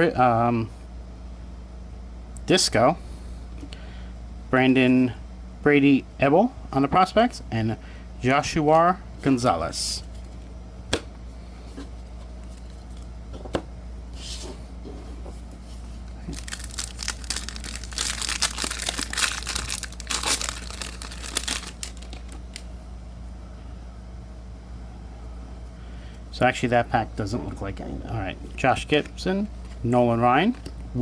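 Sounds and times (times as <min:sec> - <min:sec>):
foil wrapper crinkling and tearing: 0:16.2 - 0:22.7.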